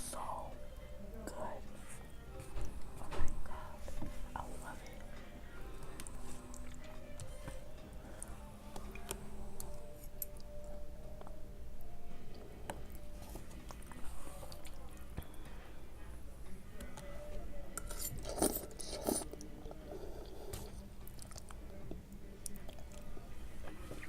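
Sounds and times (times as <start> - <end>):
person chewing food: 4.8 - 11.4, 12.3 - 15.4, 17.8 - 23.2.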